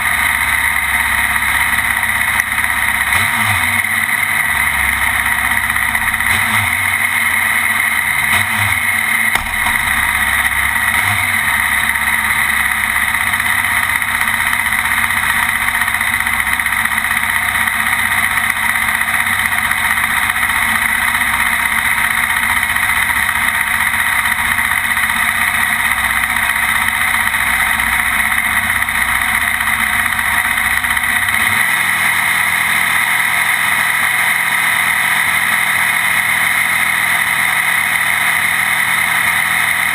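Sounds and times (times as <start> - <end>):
racing motorcycle engine: 0.0 - 39.9.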